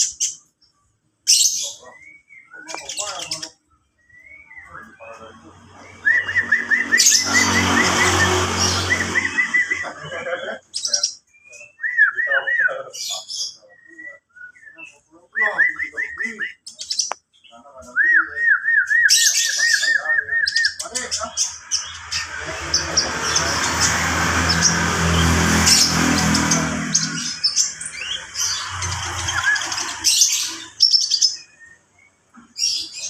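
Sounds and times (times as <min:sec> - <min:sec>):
sunbird singing whistled notes: 0:01.3 - 0:10.2, 0:10.8 - 0:25.2, 0:25.8 - 0:33.0
motor vehicle engine: 0:04.8 - 0:10.4, 0:21.1 - 0:30.8.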